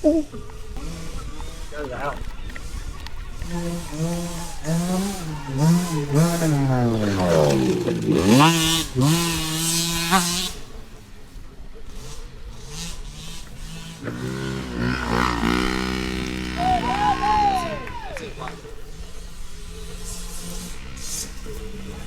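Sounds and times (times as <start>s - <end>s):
dirt bike engines revving: 0.0s - 22.0s
steady engine note: 14.6s - 18.1s.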